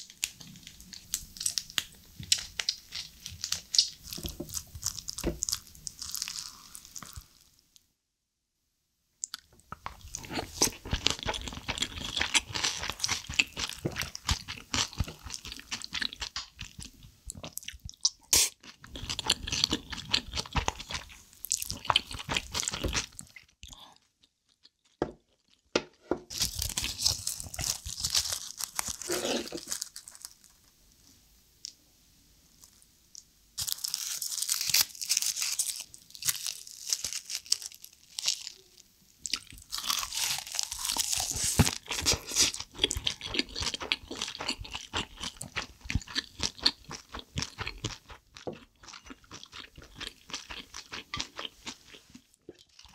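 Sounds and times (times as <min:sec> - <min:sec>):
chewing and crunching rice: 0:00.0 - 0:07.4, 0:09.2 - 0:25.6, 0:26.3 - 0:30.5, 0:33.6 - 0:52.9.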